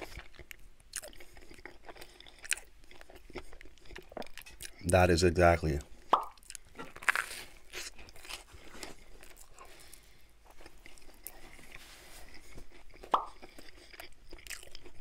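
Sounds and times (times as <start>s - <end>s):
chewing soft crunches: 0.0s - 5.1s, 5.7s - 15.0s
mouth clicks: 13.1s - 13.4s.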